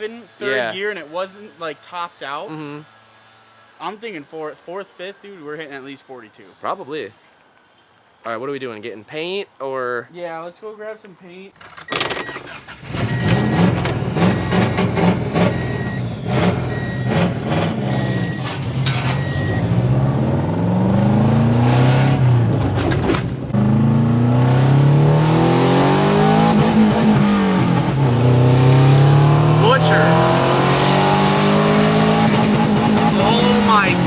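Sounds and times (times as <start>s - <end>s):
car engine accelerating: 12.7s - 34.0s.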